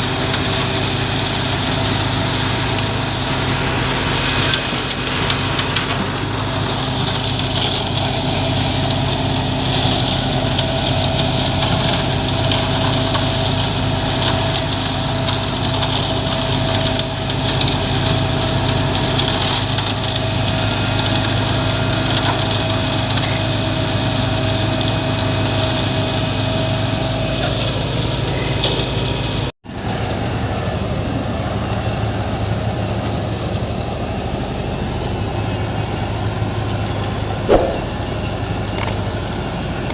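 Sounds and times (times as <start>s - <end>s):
heavy diesel engine running: 0.0s - 39.9s
steady whine: 37.5s - 39.0s.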